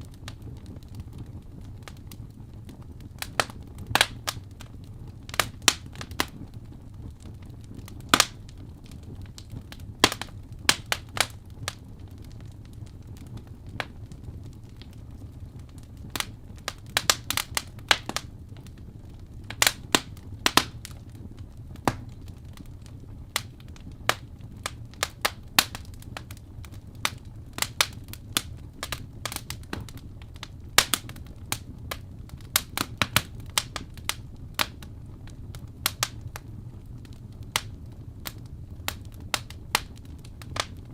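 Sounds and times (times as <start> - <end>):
fireplace crackling: 0.0 - 40.9.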